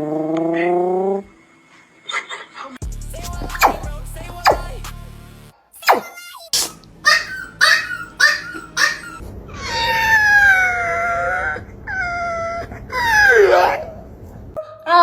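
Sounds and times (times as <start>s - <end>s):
dog howling: 7.1s - 14.0s
dog yipping: 7.1s - 14.0s.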